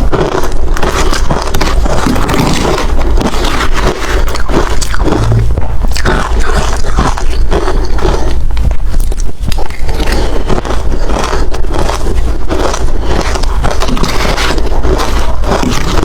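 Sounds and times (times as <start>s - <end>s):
ice being chewed and crunched: 0.0s - 16.0s.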